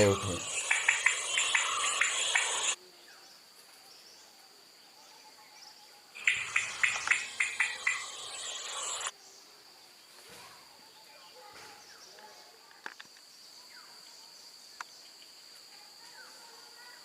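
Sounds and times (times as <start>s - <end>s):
loud pulsing insect buzzing: 0.0s - 2.8s, 6.2s - 9.1s
faint high insect tone: 0.0s - 17.0s.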